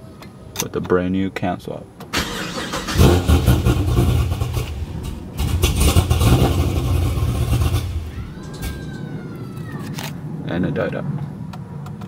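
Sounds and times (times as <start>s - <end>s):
car engine starting and running: 2.0s - 8.8s
engine stalling: 2.1s - 9.0s.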